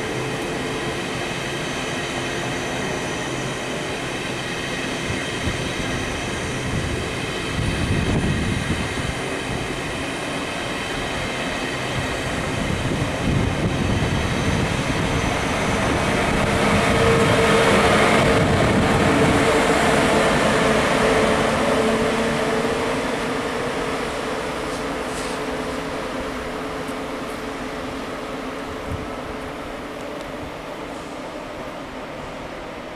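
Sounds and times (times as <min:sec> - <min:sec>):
train wheels rumbling on rail: 0:00.0 - 0:32.9.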